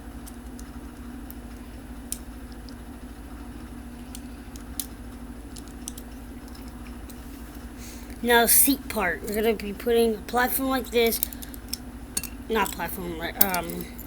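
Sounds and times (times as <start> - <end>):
steady low hum: 0.0 - 14.0
plastic bricks clicking: 5.5 - 6.8.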